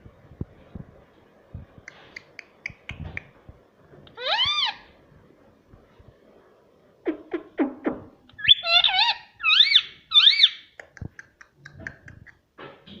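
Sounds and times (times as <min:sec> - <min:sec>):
parrot squawking: 0:04.1 - 0:04.9, 0:08.4 - 0:10.7
parrot whistled calls: 0:04.2 - 0:04.8, 0:08.4 - 0:10.6.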